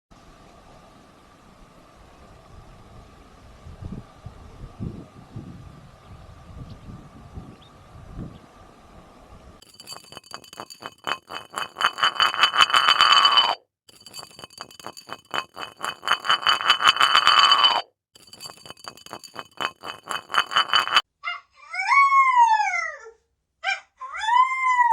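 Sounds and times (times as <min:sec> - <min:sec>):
rapid metallic ringing: 0:09.6 - 0:21.0.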